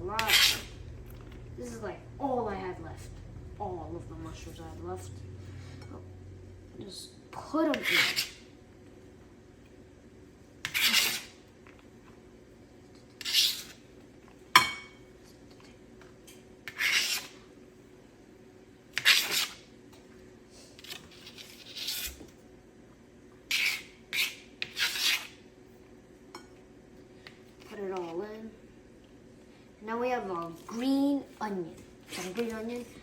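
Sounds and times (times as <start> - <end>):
knife scraping cutting board: 0.2 - 0.8, 7.7 - 8.4, 10.6 - 11.4, 13.2 - 13.8, 16.6 - 17.4, 18.9 - 19.6, 20.8 - 22.3, 23.5 - 25.4.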